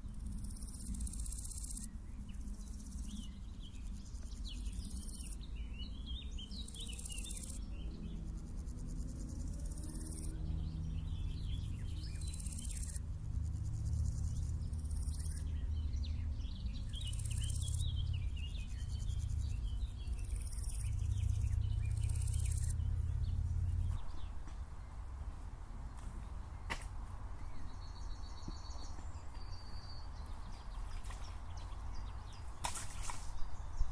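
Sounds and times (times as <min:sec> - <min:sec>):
insects stridulating: 0:00.0 - 0:05.5, 0:06.5 - 0:26.4
songbirds chirping: 0:00.0 - 0:33.9
low hum: 0:04.9 - 0:25.4.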